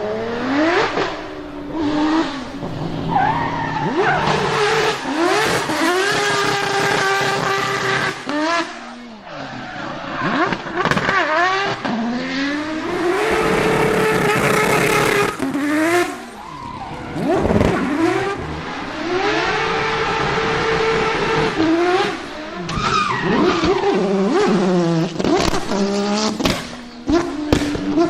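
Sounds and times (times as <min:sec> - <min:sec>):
car engine revving hard: 0:00.0 - 0:28.0
tyre squeal: 0:00.4 - 0:08.0, 0:16.2 - 0:18.0, 0:22.6 - 0:24.4.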